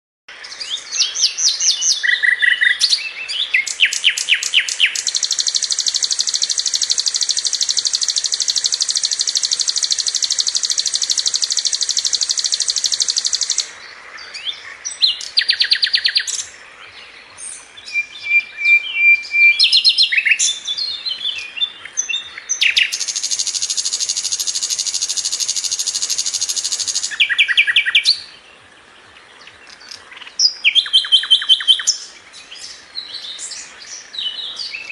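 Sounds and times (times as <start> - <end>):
flycatcher singing: 0.7 - 13.8, 17.4 - 28.6, 29.4 - 34.9
bird rapid trills: 3.6 - 13.7, 22.6 - 28.2.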